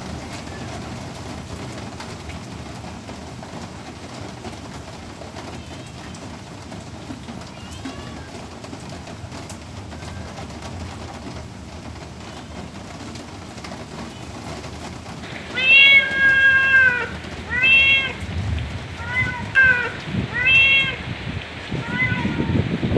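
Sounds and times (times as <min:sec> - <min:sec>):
steady rain hiss: 0:00.0 - 0:22.9
cat meowing: 0:07.5 - 0:08.4, 0:09.9 - 0:10.6, 0:15.2 - 0:22.9.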